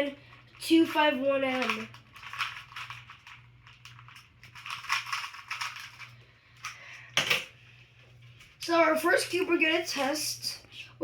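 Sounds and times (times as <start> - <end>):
plastic pieces clicking: 1.4 - 7.5.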